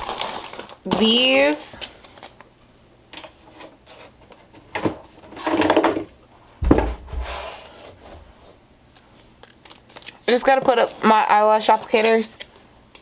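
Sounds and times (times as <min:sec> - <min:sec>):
knocks: 0:06.6 - 0:07.4
drawer shutting thud: 0:06.6 - 0:07.5
drawer sliding with scrape: 0:06.8 - 0:08.2.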